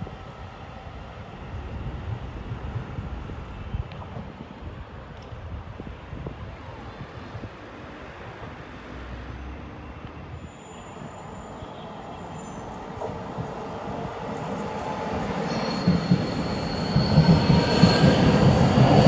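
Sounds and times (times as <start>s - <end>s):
high wheel squeal: 10.3s - 13.5s, 14.3s - 19.0s.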